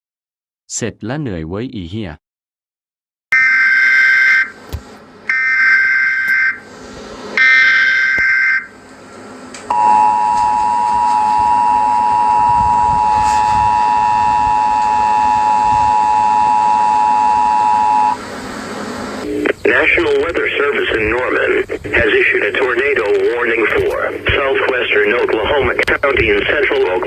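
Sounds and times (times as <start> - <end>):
screechy data bursts: 5.3 - 6.6, 7.4 - 8.7
two-tone attention signal: 7.4 - 8.7, 9.7 - 18.2.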